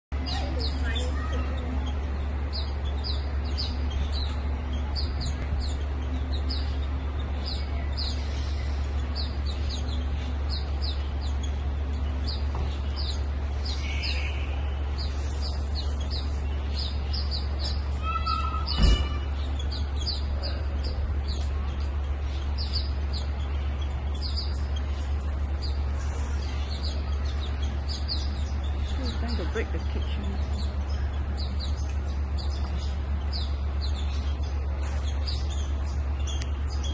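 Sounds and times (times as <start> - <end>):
small bird chirping: 0.1 - 36.9
steady low rumble: 0.1 - 36.9
harsh bird call: 13.0 - 21.6.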